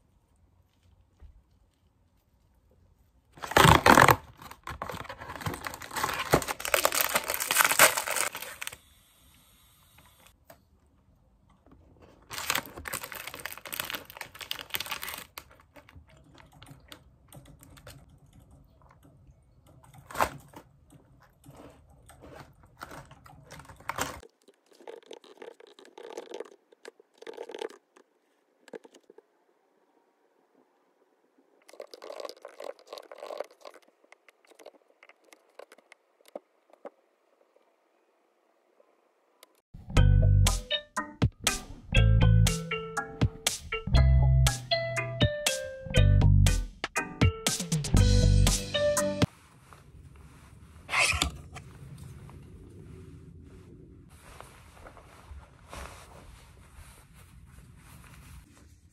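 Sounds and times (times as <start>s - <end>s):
foil wrapper crinkling: 3.4s - 8.9s, 12.2s - 16.4s, 21.5s - 28.0s
snack crunching: 21.1s - 29.2s, 31.6s - 36.9s.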